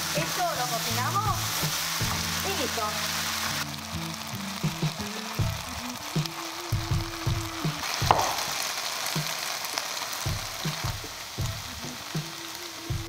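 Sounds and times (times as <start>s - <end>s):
wooden spatula stirring: 0.0s - 12.1s
meat sizzling in a wok: 0.0s - 13.0s
sharp knock: 8.0s - 8.5s.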